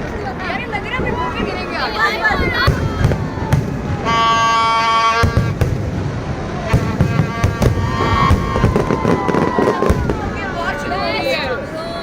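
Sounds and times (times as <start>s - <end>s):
fireworks thudding and popping: 0.0s - 11.0s
crowd: 0.0s - 12.0s
held horn-like tone: 4.0s - 5.6s, 6.7s - 8.6s.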